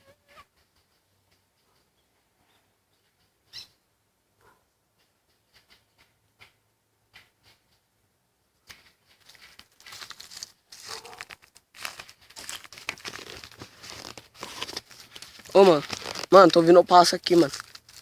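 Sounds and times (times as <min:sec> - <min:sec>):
dry leaves crunching underfoot: 0:09.2 - 0:18.0.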